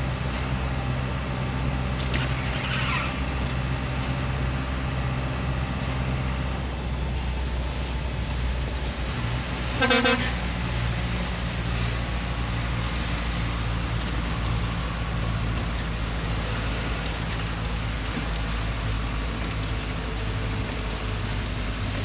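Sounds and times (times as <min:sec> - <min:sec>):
vehicle engines humming: 0:00.0 - 0:22.0
car horn honk: 0:09.8 - 0:10.4.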